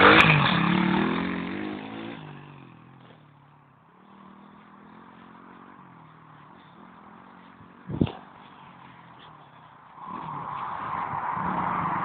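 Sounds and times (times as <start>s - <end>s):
motorbike engine: 0.0s - 12.0s.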